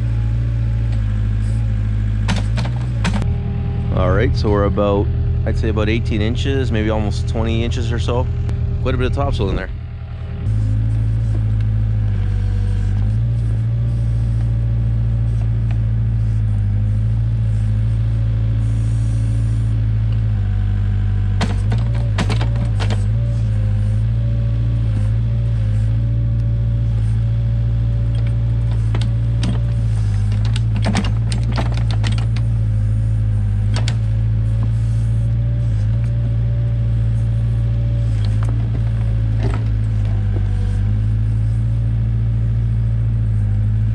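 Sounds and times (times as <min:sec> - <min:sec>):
diesel engine running under load: 0:00.0 - 0:43.9
knocks and scrapes of digging: 0:00.1 - 0:03.3, 0:10.4 - 0:20.4, 0:21.2 - 0:42.3
wavering high whine: 0:02.8 - 0:20.3.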